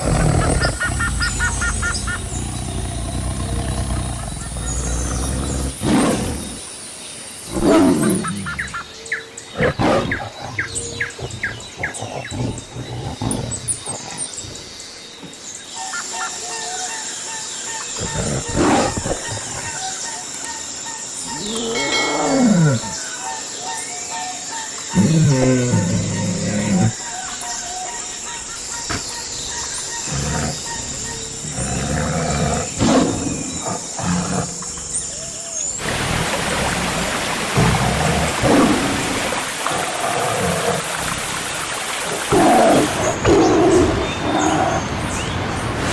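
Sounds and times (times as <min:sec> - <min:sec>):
low rumbling: 0:00.0 - 0:05.8
low roar-like animal calls: 0:00.0 - 0:06.6, 0:09.6 - 0:14.7, 0:21.3 - 0:23.0, 0:24.9 - 0:41.3
repeated bird call: 0:00.0 - 0:06.6
birds chirping: 0:00.0 - 0:45.9
rain-like hiss: 0:00.0 - 0:45.9.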